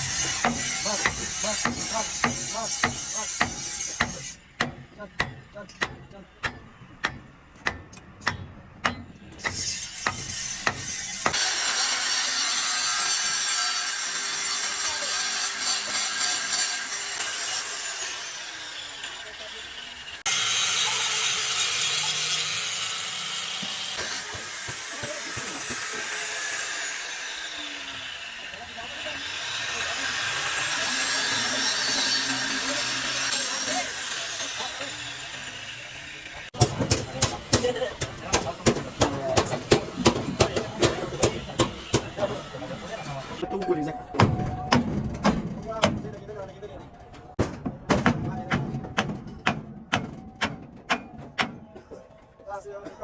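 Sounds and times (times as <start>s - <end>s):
tool rasping and scraping: 0.0s - 7.2s, 9.3s - 43.4s.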